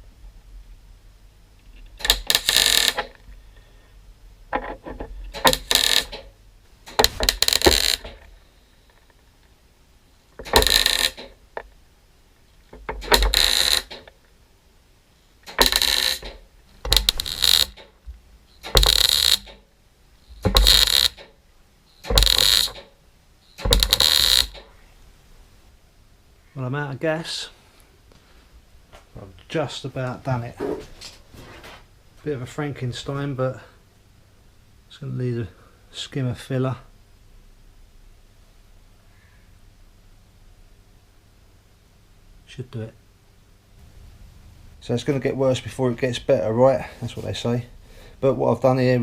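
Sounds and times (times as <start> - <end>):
welder bursts: 2.0 - 3.1, 5.3 - 6.2, 10.4 - 11.3, 13.0 - 14.1, 15.4 - 17.9, 18.6 - 19.6, 20.3 - 21.3, 22.0 - 22.9, 23.6 - 24.6.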